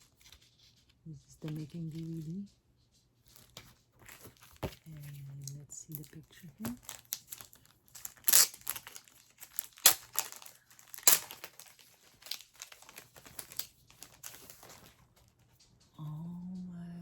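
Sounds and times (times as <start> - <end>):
packaging crinkling and tearing: 3.3 - 15.0.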